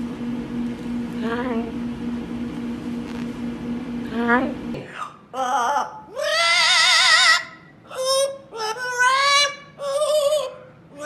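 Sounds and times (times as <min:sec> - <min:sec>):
parrot singing: 0:05.4 - 0:11.0.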